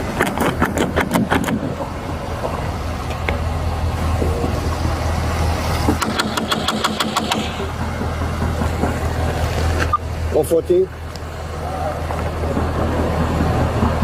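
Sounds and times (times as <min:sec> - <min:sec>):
vehicle engine humming: 0:00.0 - 0:14.0
sharp clicks and rattles: 0:05.9 - 0:09.1.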